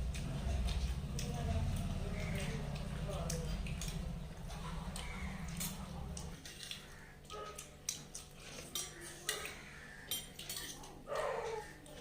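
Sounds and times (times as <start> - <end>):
dishes and cutlery clinking: 0.1 - 12.0.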